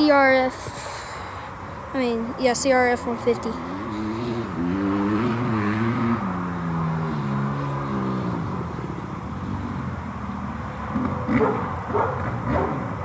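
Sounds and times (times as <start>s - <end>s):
dirt bike engine revving: 3.4s - 13.0s.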